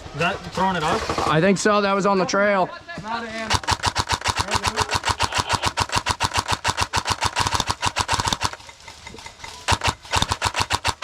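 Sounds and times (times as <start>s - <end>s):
airsoft rifle firing full auto: 3.5s - 8.7s, 9.7s - 11.0s.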